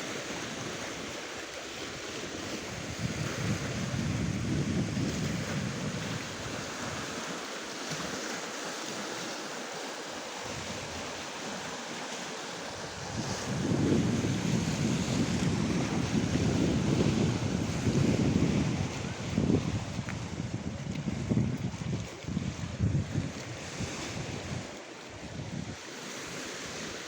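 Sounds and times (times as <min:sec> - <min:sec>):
surf washing onto shore: 0:00.0 - 0:27.0
wind blowing across microphone: 0:00.3 - 0:08.2, 0:10.4 - 0:11.7, 0:12.6 - 0:27.0.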